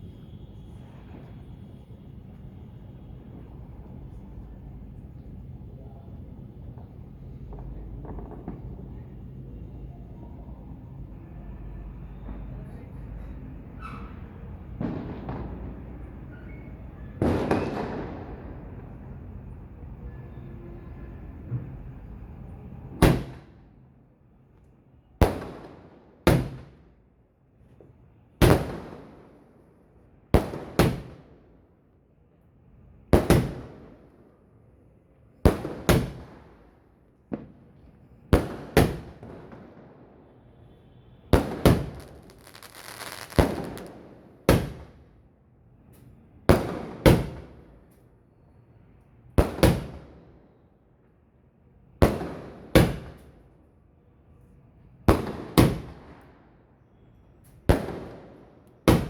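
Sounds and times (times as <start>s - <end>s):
fireworks bangs: 6.8s - 9.0s, 13.8s - 18.9s, 28.4s - 29.2s, 35.5s - 36.6s, 38.4s - 40.4s, 41.3s - 45.0s, 46.5s - 47.7s
fireworks crackling: 41.4s - 45.0s.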